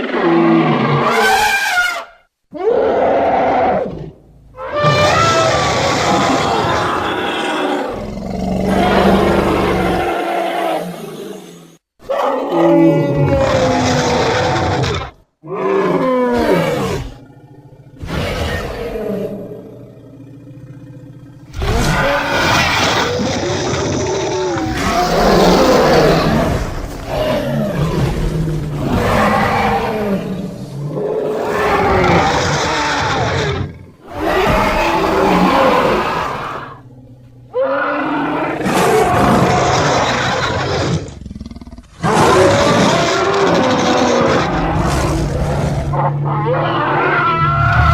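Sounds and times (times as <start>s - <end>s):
creature roars: 0.0s - 47.9s
pulsing growl: 16.6s - 30.9s.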